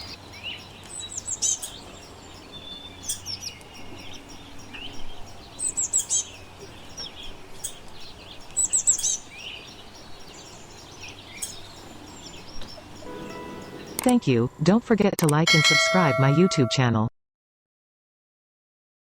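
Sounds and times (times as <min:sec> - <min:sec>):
wild birds chirping and calling: 0:00.0 - 0:14.1.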